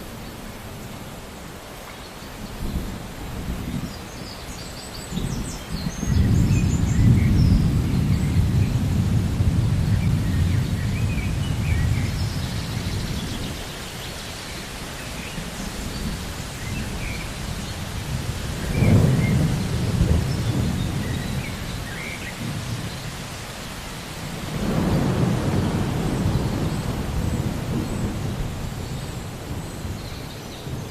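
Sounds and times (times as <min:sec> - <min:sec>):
steady rain: 0:00.0 - 0:30.9
rolling thunder: 0:05.2 - 0:13.6, 0:15.8 - 0:23.1, 0:24.3 - 0:30.0.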